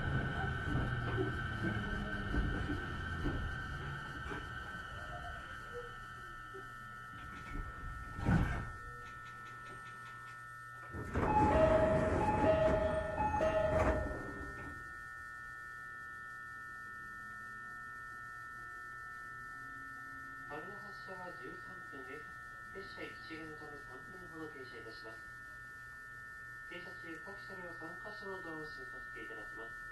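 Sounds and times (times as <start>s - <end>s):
sliding doors running: 0.0s - 4.5s, 10.9s - 14.7s
electrical whine: 0.0s - 29.9s
two-note door chime: 11.2s - 14.8s.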